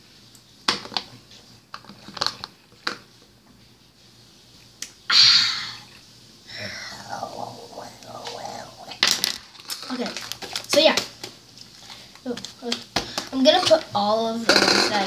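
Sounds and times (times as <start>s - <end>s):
slime hissing squelch: 5.1s - 9.0s.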